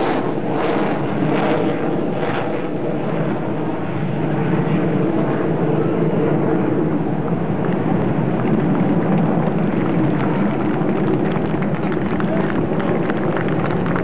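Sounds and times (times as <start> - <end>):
aircraft engine rumble: 0.0 - 14.0.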